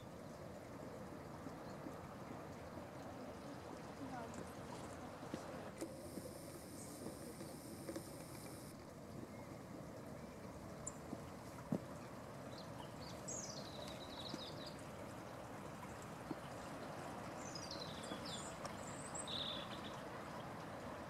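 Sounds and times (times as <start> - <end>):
outdoor background hiss: 0.0 - 21.0
small birds chirping: 12.5 - 14.8, 17.4 - 20.1.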